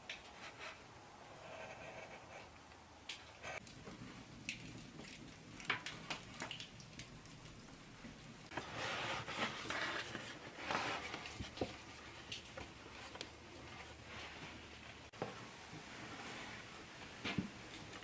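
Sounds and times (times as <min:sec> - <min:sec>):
soft scraping and rustling: 0:08.5 - 0:17.9.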